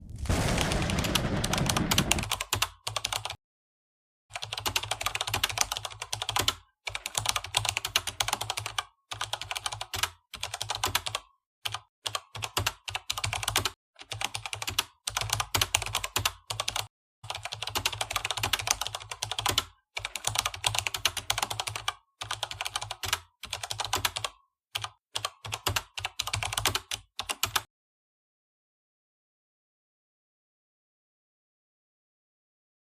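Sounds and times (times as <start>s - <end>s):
low rumble: 0.0s - 2.3s
computer keyboard typing: 0.5s - 3.4s, 4.3s - 27.7s.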